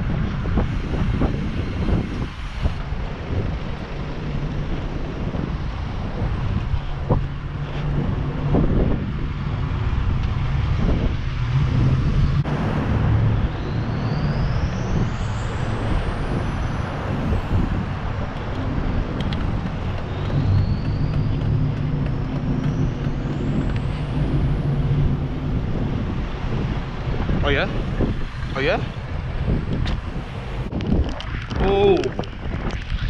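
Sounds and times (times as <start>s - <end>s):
road noise: 0.0s - 33.0s
wind on microphone: 0.0s - 33.0s
faint high whine: 12.2s - 26.7s.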